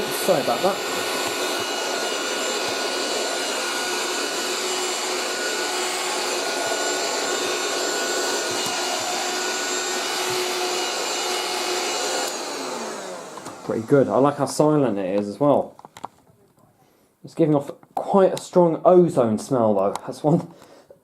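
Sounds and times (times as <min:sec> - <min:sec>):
handheld vacuum cleaner running: 0:00.0 - 0:15.3.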